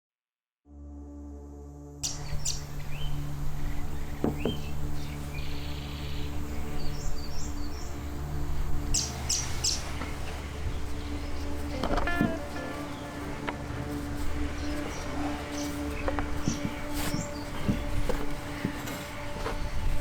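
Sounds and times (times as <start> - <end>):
background music with low drone: 0.7 - 20.0
birds chirping: 2.0 - 20.0.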